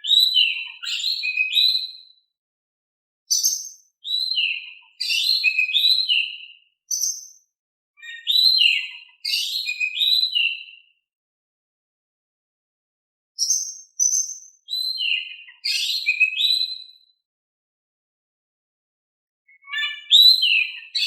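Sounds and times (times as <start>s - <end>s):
magpie-robin singing: 0.0s - 2.1s, 3.3s - 7.4s, 8.0s - 10.9s, 13.4s - 17.0s, 19.5s - 21.0s.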